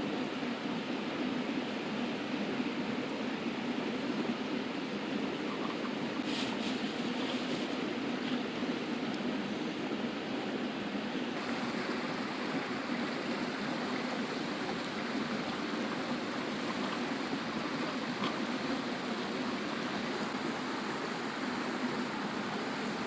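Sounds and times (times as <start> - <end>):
river flowing over rocks: 6.9 - 23.0.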